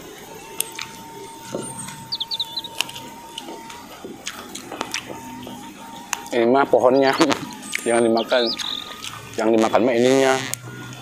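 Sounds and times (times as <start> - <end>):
chewing and smacking: 0.3 - 9.6
bird chirping: 0.5 - 11.0
mouth and hand clicks: 0.6 - 1.0, 1.8 - 6.4, 7.0 - 9.5.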